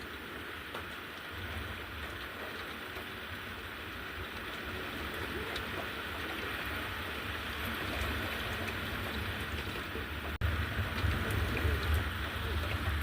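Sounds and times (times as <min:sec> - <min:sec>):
rain falling: 0:00.0 - 0:13.0
low thunder rumble: 0:10.4 - 0:13.0.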